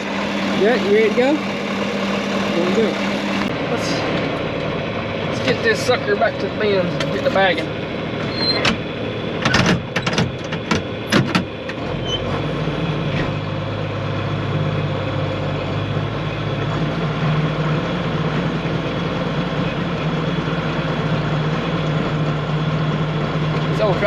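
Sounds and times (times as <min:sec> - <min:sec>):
tractor diesel engine under load: 0:00.0 - 0:24.0
sharp clicks and knocks: 0:09.4 - 0:11.8.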